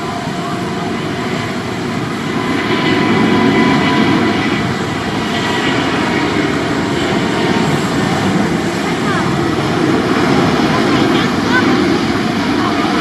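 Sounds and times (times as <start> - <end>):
jet engines rumbling: 0.0 - 13.0
thin engine whine: 0.0 - 13.0.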